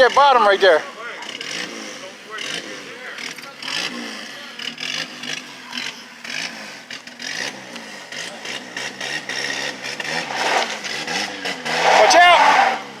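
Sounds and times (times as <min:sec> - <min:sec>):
vehicle engine running low: 0:00.0 - 0:13.0
short scraping or hissing: 0:10.2 - 0:10.8.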